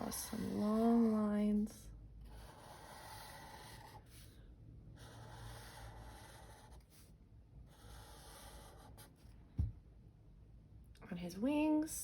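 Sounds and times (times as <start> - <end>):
pen scratching on paper: 0.0 - 1.3, 2.2 - 4.4, 5.0 - 7.1, 7.7 - 9.2.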